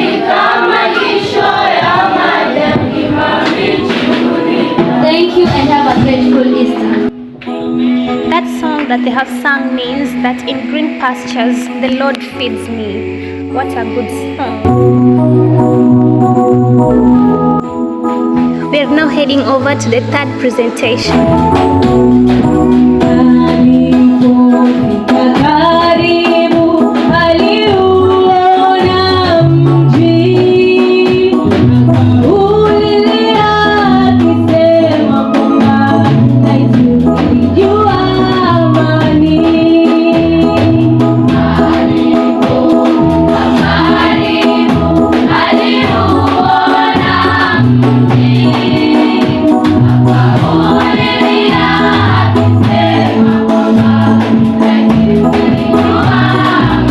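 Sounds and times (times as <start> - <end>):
choir singing gospel song: 0.0 - 7.2, 21.5 - 56.9
accompaniment with moving bass line: 12.4 - 17.6, 18.6 - 24.4, 31.5 - 56.9.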